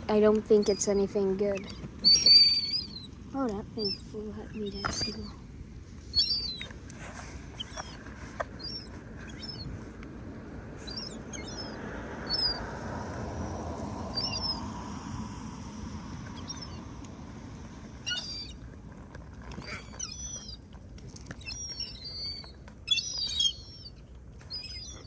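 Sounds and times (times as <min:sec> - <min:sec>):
low background rumble: 0:00.0 - 0:25.0
young gulls whistled begging calls: 0:00.5 - 0:03.2, 0:03.8 - 0:05.4, 0:06.1 - 0:06.7, 0:08.6 - 0:09.7, 0:10.8 - 0:12.7, 0:13.3 - 0:14.6, 0:16.3 - 0:16.8, 0:18.0 - 0:18.6, 0:19.5 - 0:20.6, 0:21.3 - 0:25.0.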